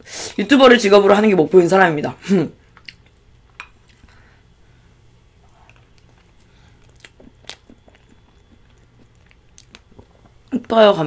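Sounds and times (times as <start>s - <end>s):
low steady hum: 0.0s - 11.0s
chewing soft food: 5.3s - 10.6s.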